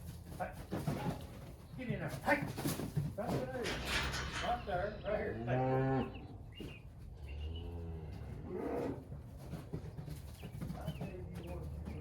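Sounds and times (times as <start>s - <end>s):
cattle mooing: 5.2s - 6.2s.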